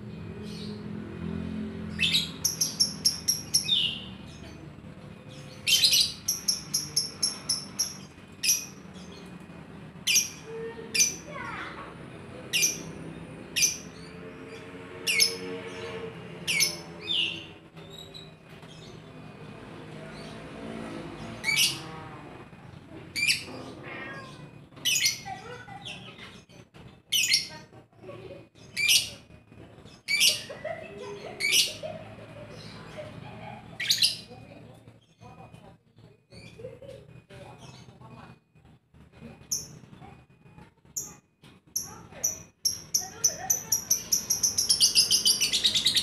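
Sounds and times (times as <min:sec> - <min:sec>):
bird shrill chirps: 0:05.4 - 0:09.2, 0:41.8 - 0:46.0.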